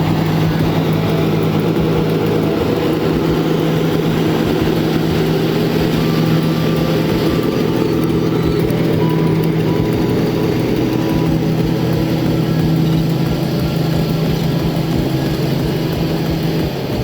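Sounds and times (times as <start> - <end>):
heavy truck engine running: 0.0 - 17.0.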